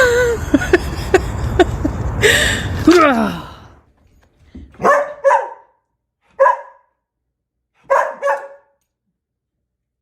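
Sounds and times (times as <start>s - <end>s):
dog barking: 4.8s - 7.0s, 7.8s - 8.8s.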